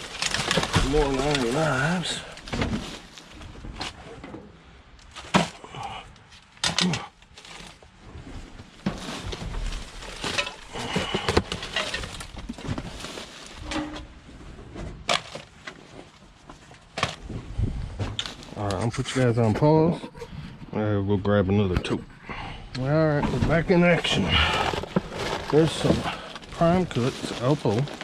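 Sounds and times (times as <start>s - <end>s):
plastic bags rustling: 0.0s - 4.1s, 6.4s - 14.4s, 15.0s - 17.3s, 23.2s - 28.0s.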